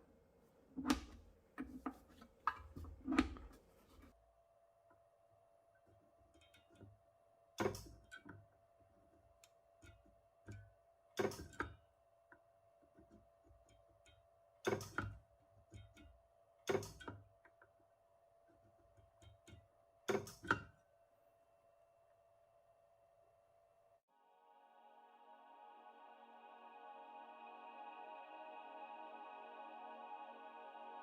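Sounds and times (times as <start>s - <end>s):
faint steady hum: 21.0s - 31.0s.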